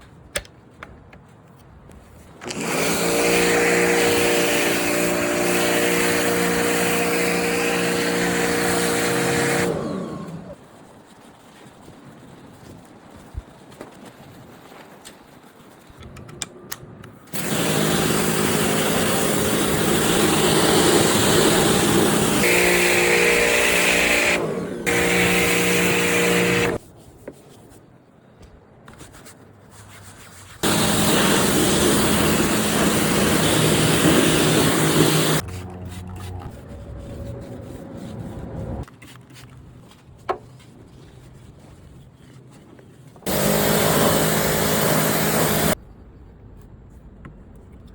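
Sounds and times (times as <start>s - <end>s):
pressure washer spraying: 2.5s - 10.4s, 17.3s - 26.8s, 30.6s - 35.4s, 43.3s - 45.8s.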